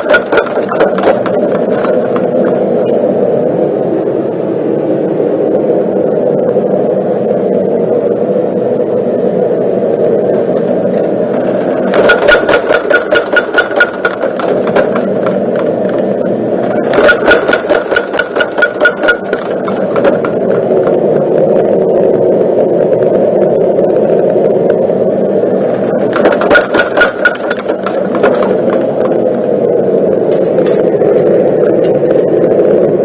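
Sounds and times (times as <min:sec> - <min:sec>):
hammer striking hot steel: 0:00.0 - 0:02.3, 0:11.9 - 0:15.4, 0:16.8 - 0:20.3.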